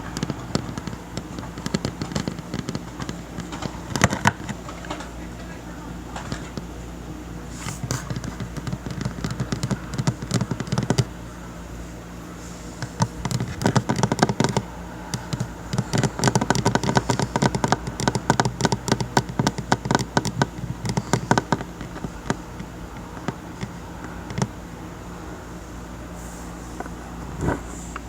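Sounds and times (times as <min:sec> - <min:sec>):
fingers tapping on a table: 0:00.0 - 0:05.1, 0:07.8 - 0:11.1, 0:12.8 - 0:24.6.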